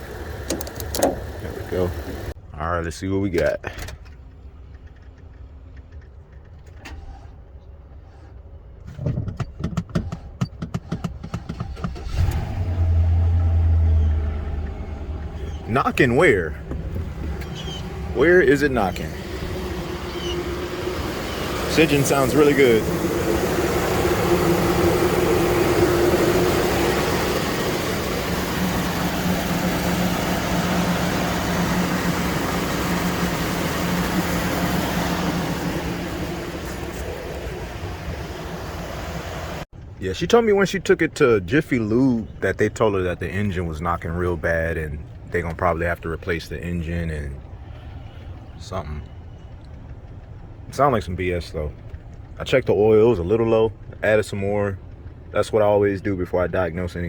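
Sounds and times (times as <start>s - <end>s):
engine cranking on starter: 0.0s - 2.4s, 10.1s - 40.6s
engine idling: 0.0s - 2.4s, 11.6s - 57.0s.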